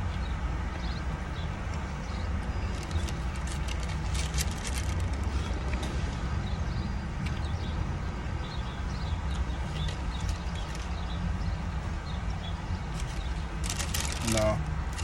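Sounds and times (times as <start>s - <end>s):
steady low rumble: 0.7s - 15.0s
wrapper crinkles: 2.7s - 5.5s, 13.0s - 15.0s.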